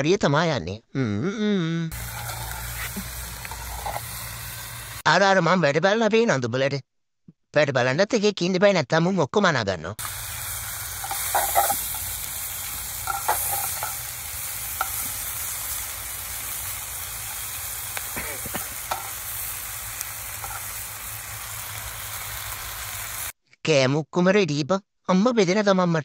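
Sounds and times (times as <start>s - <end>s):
food sizzling in a pot: 1.9s - 5.1s, 10.0s - 23.4s
metal spoon scraping a pot: 2.0s - 4.2s, 11.0s - 12.1s, 12.9s - 15.2s.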